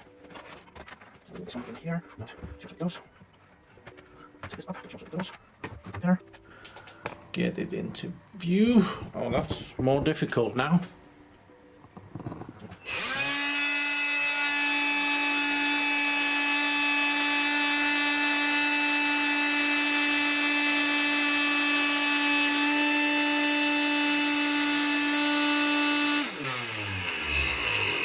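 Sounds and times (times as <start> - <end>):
vacuum cleaner motor whining: 12.8 - 28.0.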